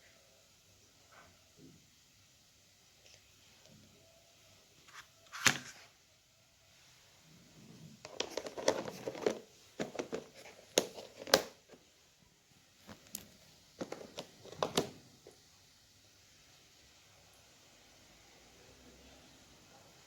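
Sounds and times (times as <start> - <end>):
crinkling and clicking handling noises: 4.8 - 5.9, 8.0 - 11.9, 12.8 - 15.4.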